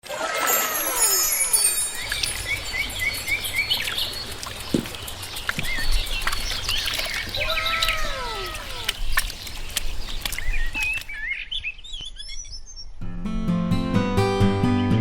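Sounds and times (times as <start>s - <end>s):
birds chirping: 1.0s - 12.9s
falling whistled bird calls: 1.4s - 12.7s.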